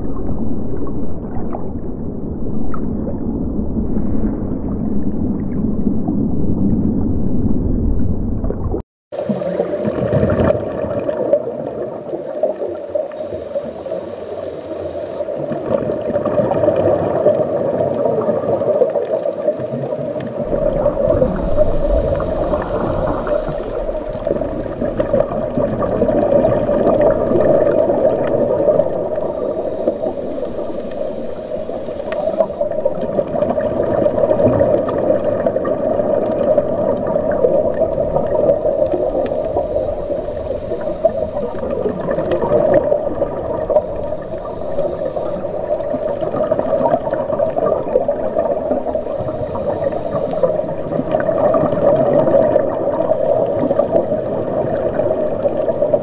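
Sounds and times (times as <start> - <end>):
muffled underwater gurgling: 0.0 - 56.0.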